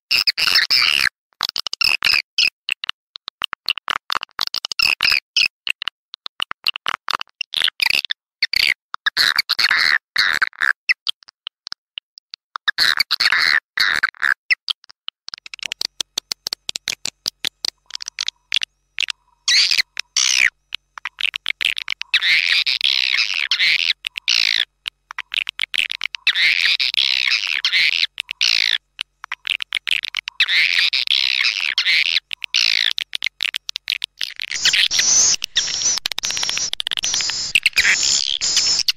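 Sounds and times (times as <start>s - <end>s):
swiftlet chirps and twitters: 15.6s - 38.9s.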